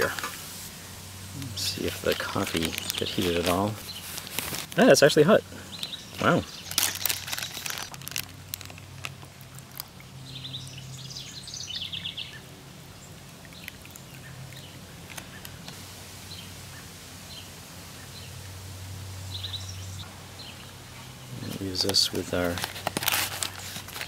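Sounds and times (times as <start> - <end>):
bird chirping trills: 9.5 - 15.6.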